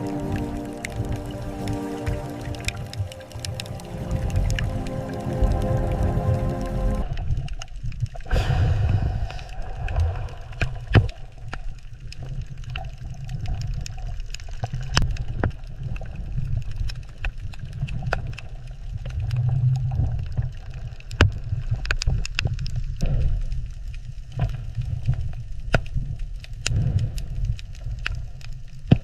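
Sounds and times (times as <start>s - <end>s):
churning water rumble: 0.0s - 17.2s.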